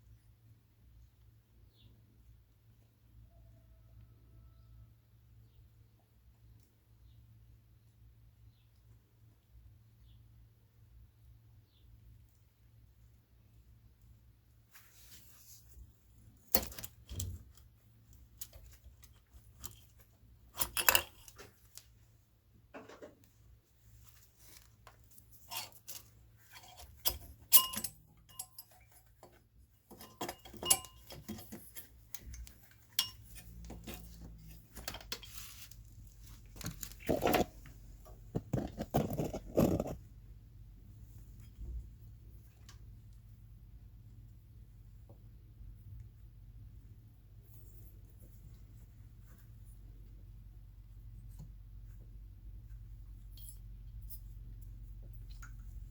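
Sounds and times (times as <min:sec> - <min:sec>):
metal tools clinking: 0:20.5 - 0:21.5, 0:25.3 - 0:37.5.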